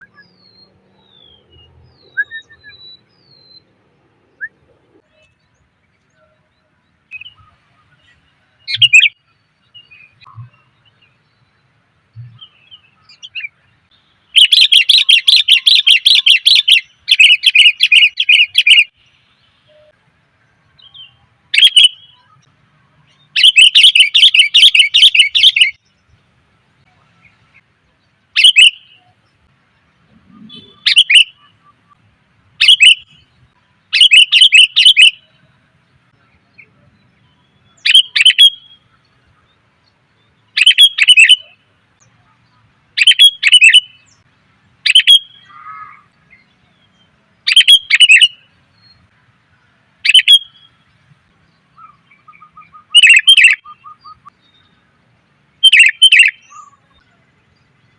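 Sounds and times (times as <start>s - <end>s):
bird chattering calls: 14.4s - 18.9s, 23.4s - 25.8s, 28.4s - 29.1s, 30.2s - 31.9s, 32.6s - 33.2s, 33.9s - 35.2s, 40.6s - 41.6s, 43.0s - 44.2s, 47.5s - 48.4s, 51.8s - 54.3s, 55.6s - 56.8s.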